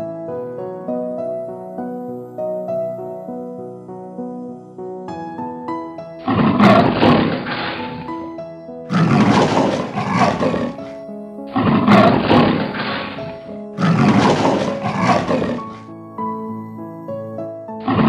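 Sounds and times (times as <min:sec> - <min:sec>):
light background music: 0:00.0 - 0:18.0
leopard growling: 0:06.2 - 0:08.2, 0:08.9 - 0:15.9.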